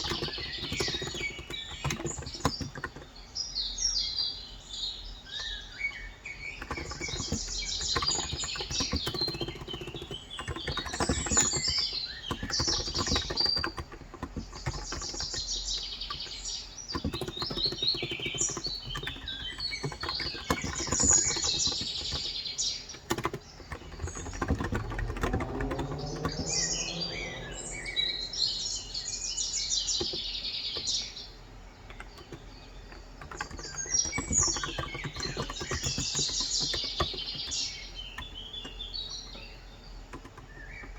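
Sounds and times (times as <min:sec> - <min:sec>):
keyboard typing clacks: 0:00.0 - 0:03.2, 0:05.3 - 0:29.2, 0:29.8 - 0:40.9
birds chirping: 0:00.0 - 0:40.9.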